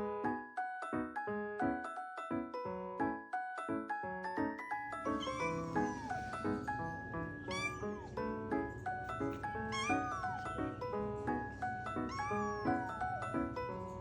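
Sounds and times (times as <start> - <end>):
background music: 4.2 - 14.0
kitten meowing: 5.1 - 10.9, 11.5 - 13.9.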